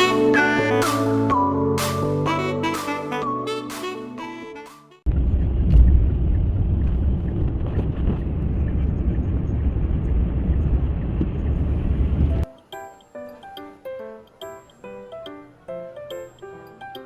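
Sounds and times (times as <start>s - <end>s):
steady low rumbling: 5.1s - 12.4s.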